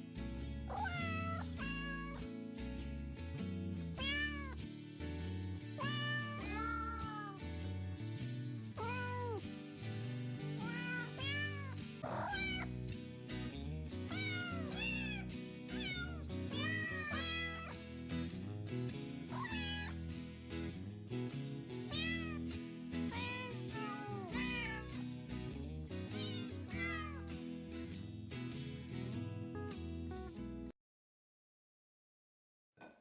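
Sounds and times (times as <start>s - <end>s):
cat meowing: 0.7s - 2.2s, 4.0s - 4.6s, 5.8s - 7.4s, 8.8s - 9.4s, 10.6s - 12.7s, 14.1s - 17.7s, 19.3s - 20.0s, 21.9s - 22.4s, 23.1s - 25.0s, 26.2s - 27.3s.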